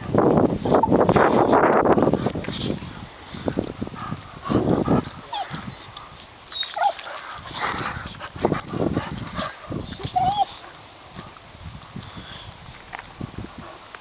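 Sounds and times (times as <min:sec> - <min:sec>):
dog whining: 0:04.9 - 0:08.0, 0:09.0 - 0:10.6.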